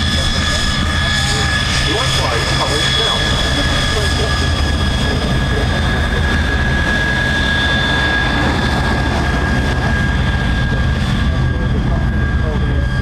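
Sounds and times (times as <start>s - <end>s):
jet engine whine and rumble: 0.0s - 13.0s.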